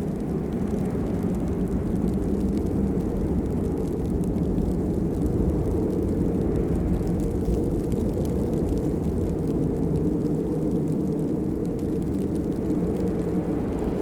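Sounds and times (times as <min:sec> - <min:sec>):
heavy rain: 0:00.0 - 0:14.0.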